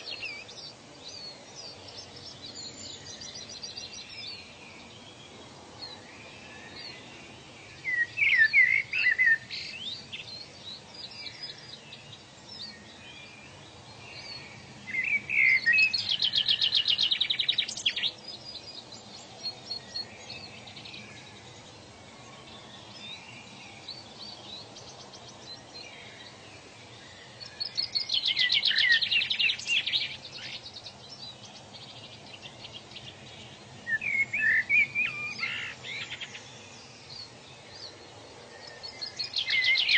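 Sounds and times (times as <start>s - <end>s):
forest ambience hiss: 0.0s - 39.9s
songbirds singing: 0.0s - 39.9s.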